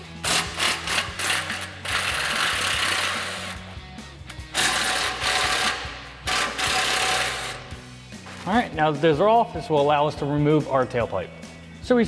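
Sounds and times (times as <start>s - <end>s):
impact wrench hammering: 0.2s - 3.6s, 4.3s - 8.5s.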